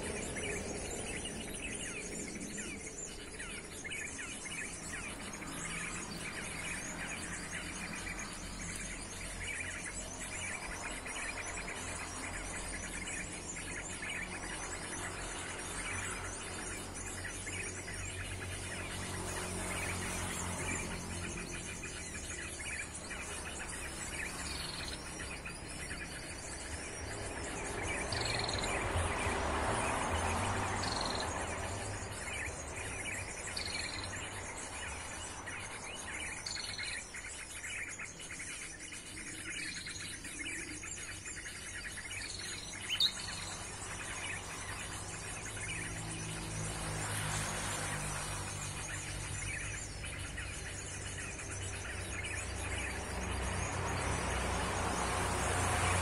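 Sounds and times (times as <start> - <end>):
low traffic rumble: 0.0 - 56.0
vehicle passing: 17.8 - 37.3, 42.4 - 56.0.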